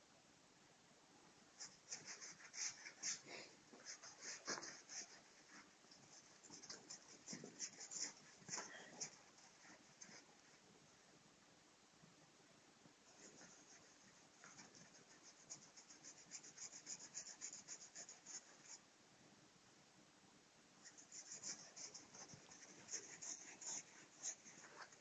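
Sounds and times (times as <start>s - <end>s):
faint quick scratching: 1.6s - 10.6s, 20.9s - 25.0s.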